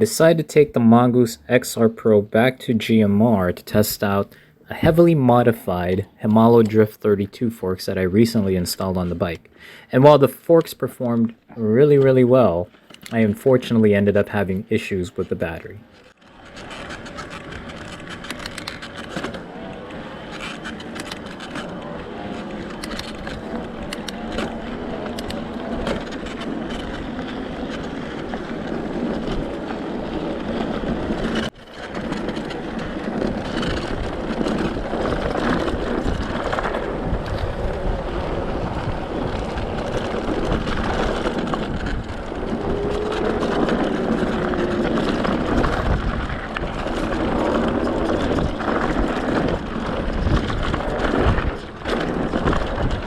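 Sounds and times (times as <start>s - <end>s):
bike tyres rolling on dirt: 0.0s - 53.0s
bike rattles and clicks: 11.9s - 53.0s.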